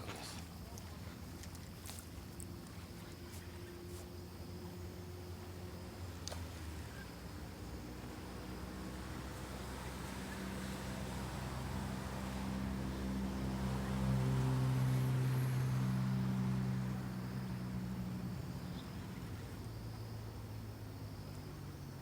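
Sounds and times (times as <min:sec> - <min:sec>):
motor engine passing by: 0:09.2 - 0:19.6.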